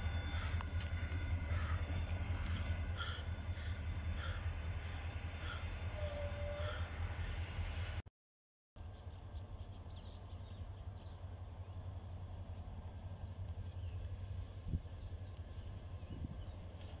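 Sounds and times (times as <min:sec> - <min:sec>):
low steady outdoor rumble: 0:08.8 - 0:17.0.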